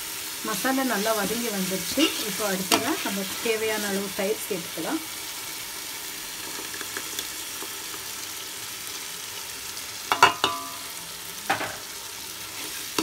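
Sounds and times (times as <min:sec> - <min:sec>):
masala sizzling in oil: 0:00.0 - 0:13.0
steel ladle knocking pot: 0:10.1 - 0:10.8.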